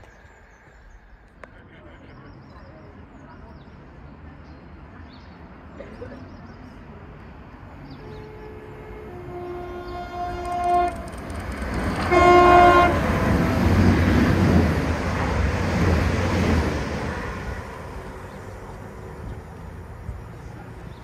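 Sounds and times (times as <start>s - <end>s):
rush of passing train: 0.0s - 21.0s
train horn blasts: 7.9s - 13.8s.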